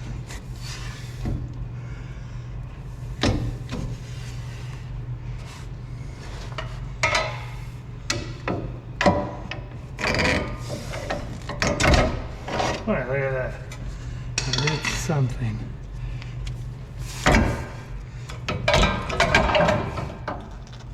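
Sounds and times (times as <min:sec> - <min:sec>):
steady low hum: 0:00.0 - 0:20.9
metal knocks and clunks: 0:08.1 - 0:12.8, 0:18.4 - 0:20.5.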